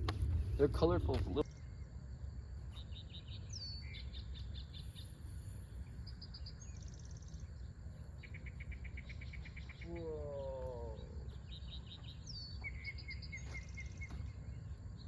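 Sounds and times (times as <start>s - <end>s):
insect chirps: 0.0s - 15.0s
low steady rumble: 0.0s - 15.0s
insects trilling: 0.1s - 15.0s.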